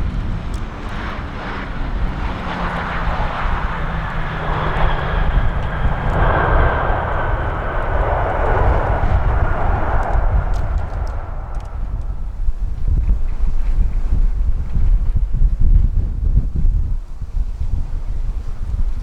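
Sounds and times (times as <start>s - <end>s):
jet airliner engine roar: 0.0s - 14.6s
wind rumbling on microphone: 0.0s - 19.0s.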